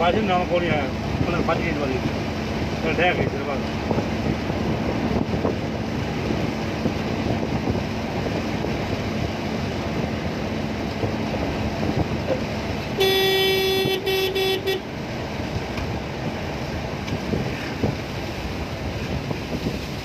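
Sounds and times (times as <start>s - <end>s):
heavy rain: 8.0s - 20.0s
vehicle horn toots: 13.0s - 14.9s.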